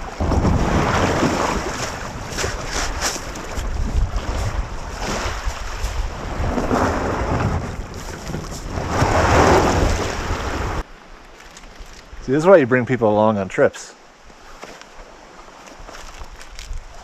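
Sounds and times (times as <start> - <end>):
wind buffeting microphone: 0.0 - 10.8
water washing and lapping: 0.0 - 12.2.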